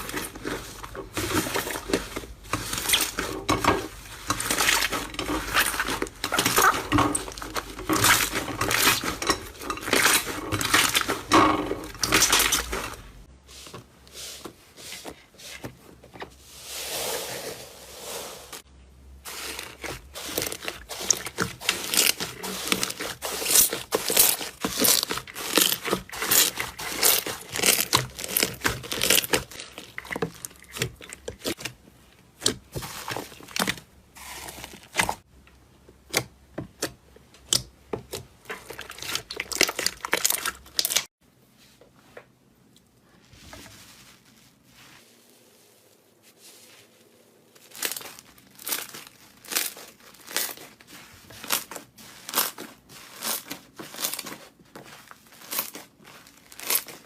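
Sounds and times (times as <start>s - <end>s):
slime clicking and crackling: 19.4s - 31.6s, 47.6s - 54.5s, 55.3s - 57.0s.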